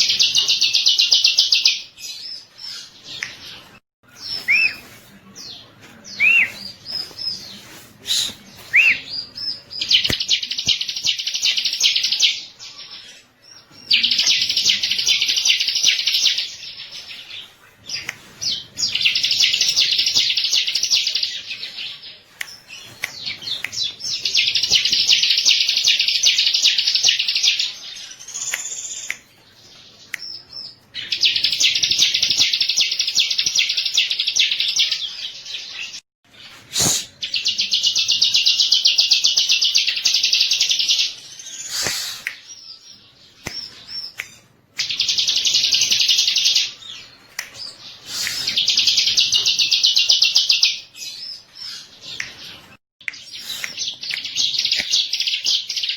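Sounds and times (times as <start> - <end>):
bird chips and sharp calls: 36.6 - 55.9.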